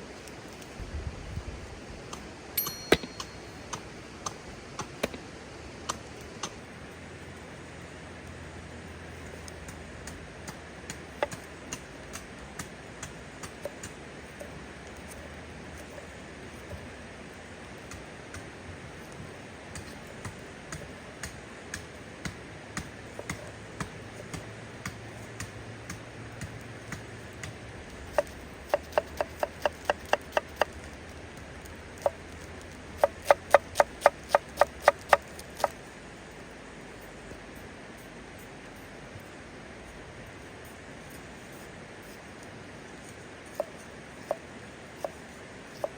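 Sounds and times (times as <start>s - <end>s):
knife chopping on wooden board: 10.9s - 12.2s, 22.2s - 30.8s, 33.0s - 35.8s, 45.0s - 45.9s.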